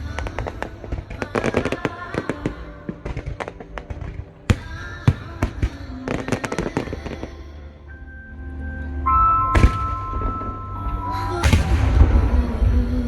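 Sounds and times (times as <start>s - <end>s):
fireworks booms: 0.0s - 7.2s, 9.6s - 10.5s, 11.4s - 12.8s
fireworks crackling and banging: 0.0s - 7.4s, 9.6s - 12.8s.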